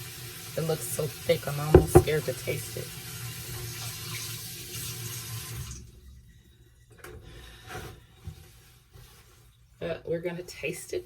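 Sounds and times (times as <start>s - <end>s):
tap running into sink: 1.8s - 2.3s.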